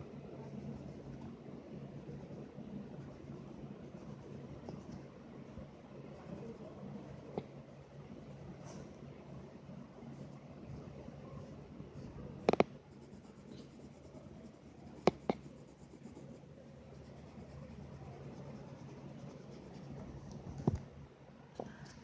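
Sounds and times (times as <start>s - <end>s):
pen scratching on paper: 10.8s - 20.0s.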